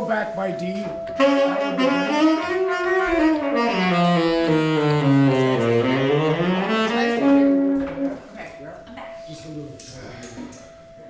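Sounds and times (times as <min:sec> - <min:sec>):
saxophone playing slow notes: 0:01.0 - 0:08.6.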